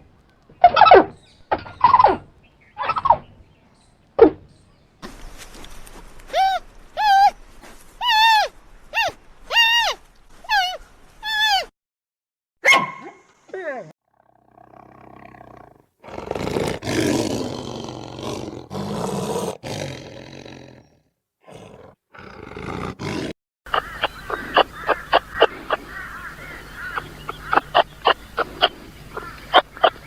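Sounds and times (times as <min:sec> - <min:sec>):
large animal roaring: 0:14.1 - 0:23.3.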